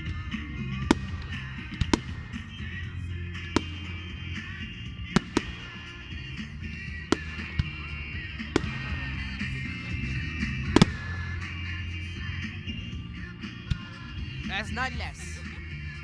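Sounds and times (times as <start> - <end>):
background music: 0.0 - 16.0
firework bangs: 3.4 - 11.8.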